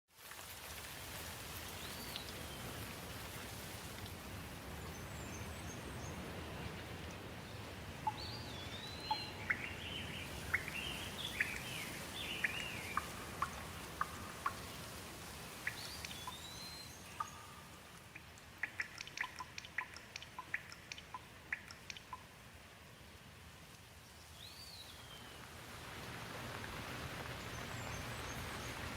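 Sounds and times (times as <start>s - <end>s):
steady rain: 0.1s - 28.9s
water drips ticking: 0.2s - 22.6s
birds chirping: 4.7s - 22.3s.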